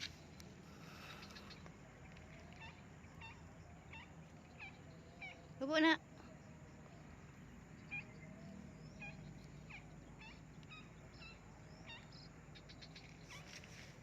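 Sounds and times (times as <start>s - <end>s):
faint bird chirps: 0.0s - 14.0s
low background hum: 0.0s - 14.0s.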